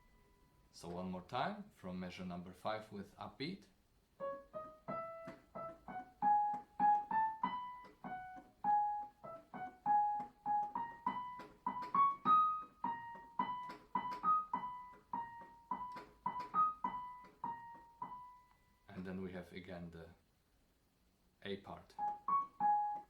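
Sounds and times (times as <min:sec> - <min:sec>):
piano melody: 0:00.0 - 0:00.7, 0:04.2 - 0:18.8, 0:21.9 - 0:23.0.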